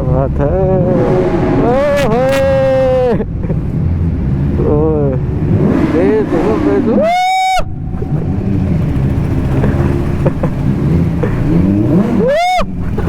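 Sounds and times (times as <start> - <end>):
motorcycle engine revving: 0.0 - 13.0
wind rush: 0.4 - 3.5.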